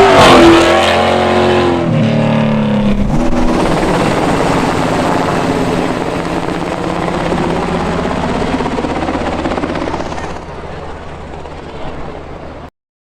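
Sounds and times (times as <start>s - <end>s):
off-road race vehicle engines: 0.0s - 8.7s, 9.9s - 12.7s.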